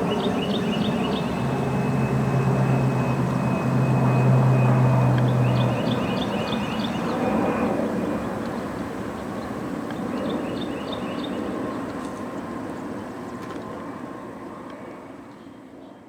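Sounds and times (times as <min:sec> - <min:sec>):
military jet engine roar: 0:00.0 - 0:11.9.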